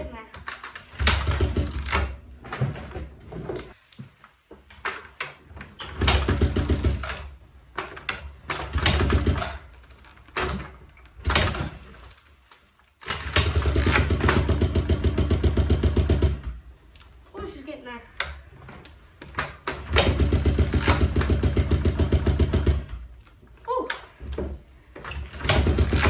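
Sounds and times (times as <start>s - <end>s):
dirt bike engine starting: 0.8s - 2.2s, 5.9s - 7.4s, 8.1s - 9.8s, 13.0s - 16.6s, 19.6s - 23.1s, 25.1s - 26.0s.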